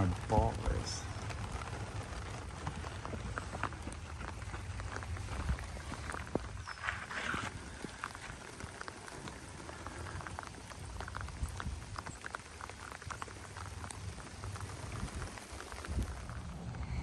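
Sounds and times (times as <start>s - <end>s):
light rain pattering: 0.0s - 17.0s
low rumble: 13.0s - 17.0s.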